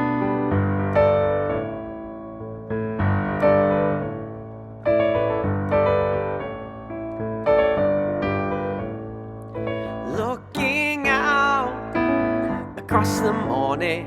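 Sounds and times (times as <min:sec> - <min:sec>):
digital piano chords: 0:00.0 - 0:14.0.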